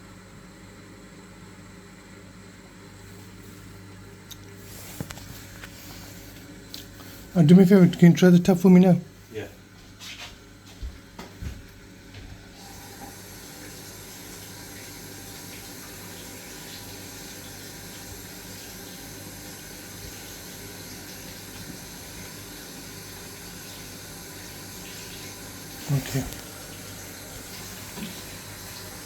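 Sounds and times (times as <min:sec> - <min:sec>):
water running from a tap: 0:12.5 - 0:29.0.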